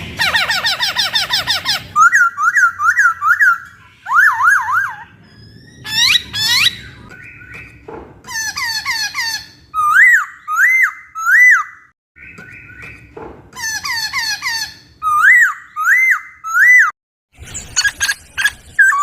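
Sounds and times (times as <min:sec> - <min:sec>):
high squeaky bird chirps: 0:00.0 - 0:19.0
bird singing whistled song: 0:01.9 - 0:07.8, 0:09.8 - 0:13.1, 0:15.0 - 0:16.9, 0:17.8 - 0:19.0.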